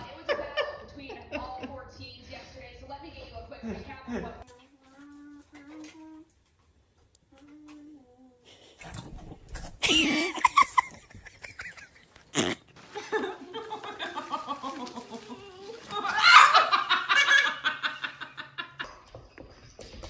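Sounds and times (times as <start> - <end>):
people laughing: 9.8 - 12.1, 12.8 - 19.0.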